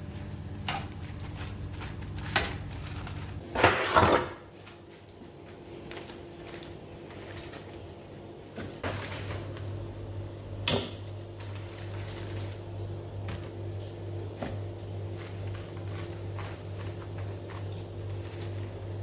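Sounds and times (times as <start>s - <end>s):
steady low hum: 4.5s - 19.0s.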